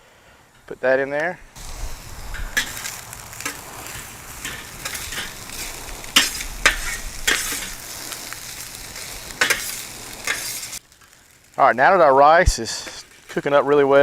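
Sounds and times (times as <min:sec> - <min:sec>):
rice sizzling on griddle: 0:00.2 - 0:14.0
spatula scraping pan: 0:02.3 - 0:10.8.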